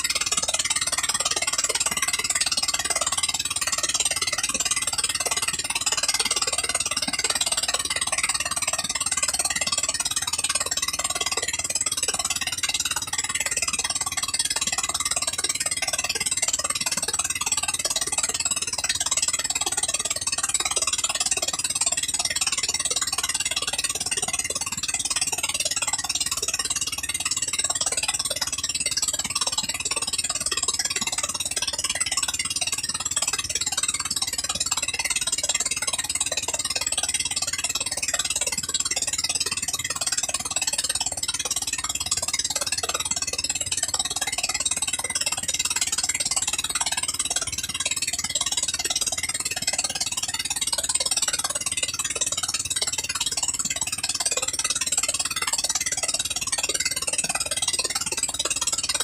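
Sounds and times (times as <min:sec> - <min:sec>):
gasoline engine running steadily: 0:00.0 - 0:59.0.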